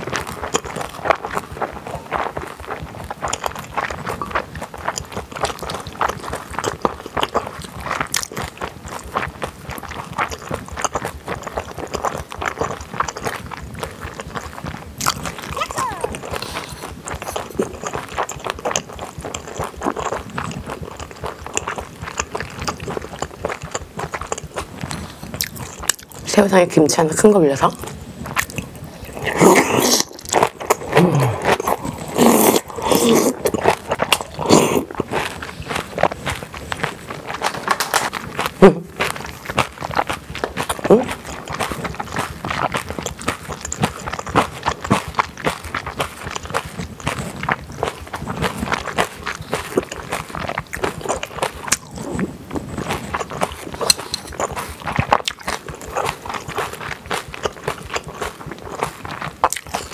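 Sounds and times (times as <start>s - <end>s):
wet chewing and smacking: 0.0s - 59.9s
slurping food into mouth: 9.8s - 23.3s, 27.8s - 59.9s.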